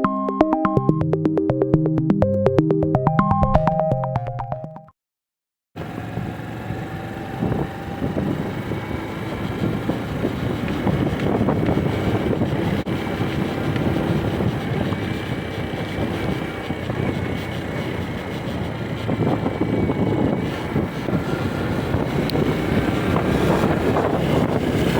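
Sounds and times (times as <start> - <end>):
motorcycle engine running: 5.8 - 24.9
wind noise on microphone: 5.8 - 24.9.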